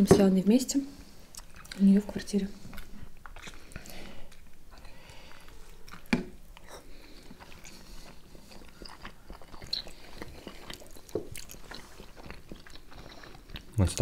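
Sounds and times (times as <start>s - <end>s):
chewing and biting dumplings: 1.0s - 14.0s
wet mouth clicks: 1.3s - 1.8s.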